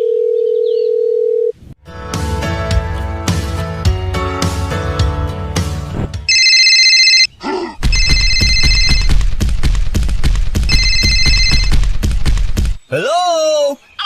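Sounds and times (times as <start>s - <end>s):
background music with beat: 1.9s - 6.3s
electronic telephone ring: 6.3s - 7.3s, 7.9s - 9.1s, 10.7s - 11.7s.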